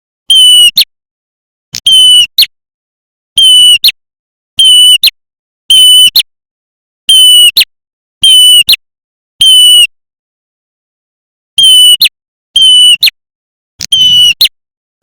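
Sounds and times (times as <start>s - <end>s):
bird calling: 13.9s - 14.5s.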